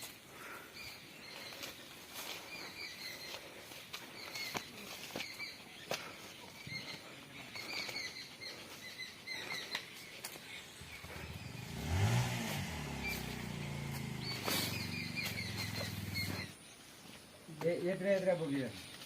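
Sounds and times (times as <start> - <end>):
faint chirps: 0.0 - 19.0
engine starting and revving: 10.7 - 16.5.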